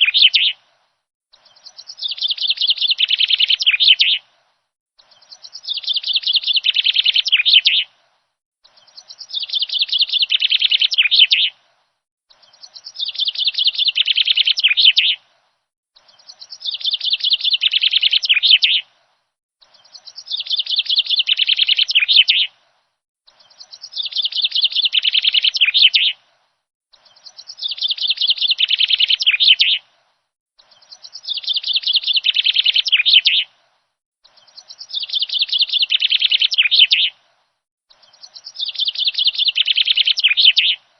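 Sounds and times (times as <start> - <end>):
rapid high bird chirping: 0.0 - 0.6, 1.3 - 4.2, 5.0 - 7.9, 8.6 - 11.6, 12.3 - 15.2, 16.0 - 18.8, 19.6 - 22.5, 23.3 - 26.2, 26.9 - 29.8, 30.6 - 33.5, 34.2 - 37.2, 37.9 - 40.8.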